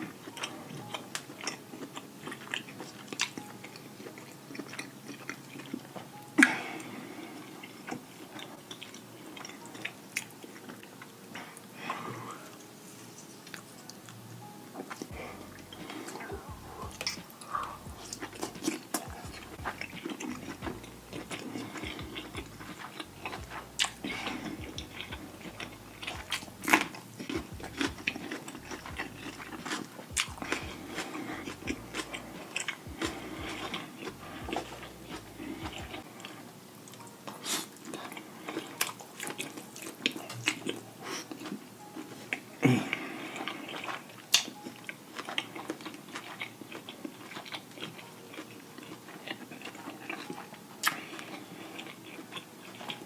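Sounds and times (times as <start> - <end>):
wet bites and chewing: 14.4 - 36.0, 43.4 - 53.0.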